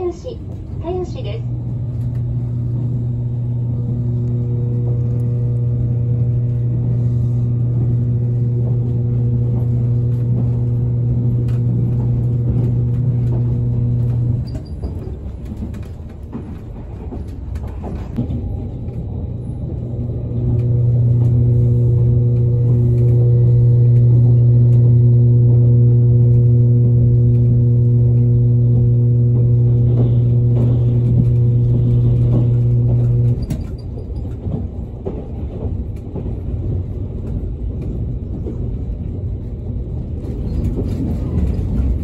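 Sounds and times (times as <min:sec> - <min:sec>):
train running rumble: 0:00.0 - 0:42.0
low electrical hum: 0:00.8 - 0:14.6, 0:18.6 - 0:33.8.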